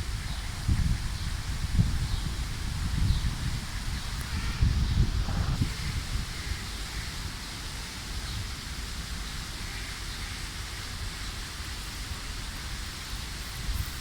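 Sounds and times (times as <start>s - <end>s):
wind buffeting microphone: 0.0s - 9.3s, 11.0s - 14.0s
leaves rustling: 9.6s - 14.0s.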